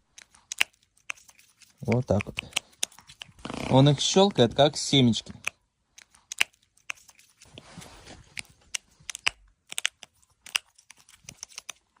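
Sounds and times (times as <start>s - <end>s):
crow cracking nuts: 0.0s - 3.4s
rustling scrape: 7.0s - 8.5s.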